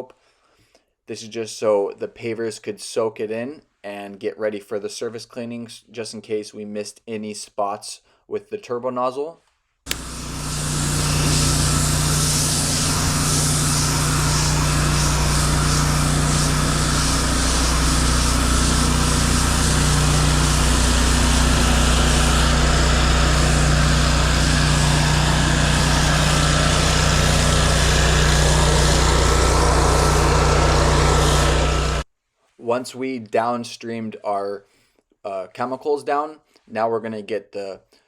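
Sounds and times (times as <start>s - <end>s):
pressure washer engine running: 9.9s - 32.0s
water hissing from spray wand: 9.9s - 32.0s.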